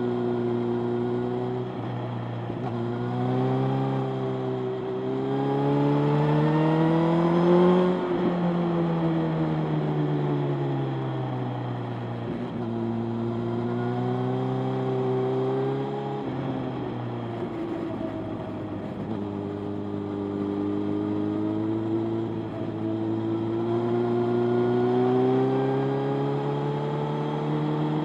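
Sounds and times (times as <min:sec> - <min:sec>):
motorcycle engine running: 0:16.3 - 0:23.6.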